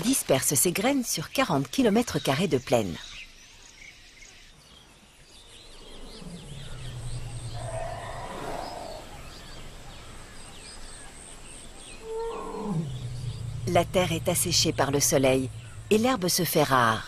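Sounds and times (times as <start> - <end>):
small birds chirping: 0.0 - 17.0
low drawn-out tone: 12.0 - 17.0.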